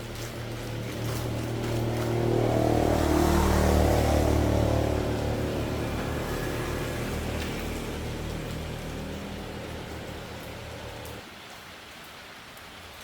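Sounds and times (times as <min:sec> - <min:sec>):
small motorcycle engine revving: 0:01.0 - 0:11.2.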